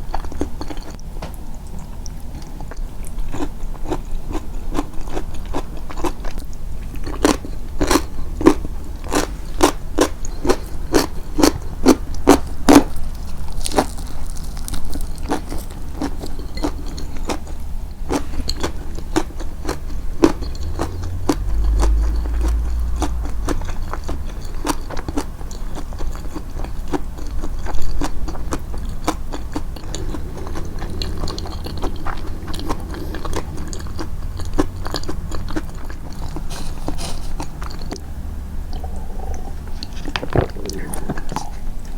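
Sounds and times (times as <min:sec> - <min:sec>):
close chewing crunches: 0:00.0 - 0:38.1
low rumble: 0:20.0 - 0:24.6.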